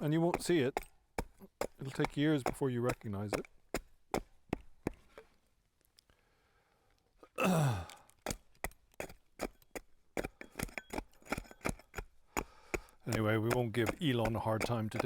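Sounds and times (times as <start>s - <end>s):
hand tools knocking wood: 0.0s - 5.0s, 8.2s - 15.0s
person sighing: 7.2s - 8.1s.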